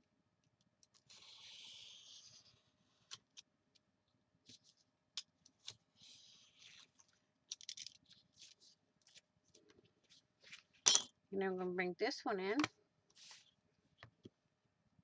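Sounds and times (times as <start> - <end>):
soft paper rustle: 4.4 - 10.8, 13.1 - 13.9.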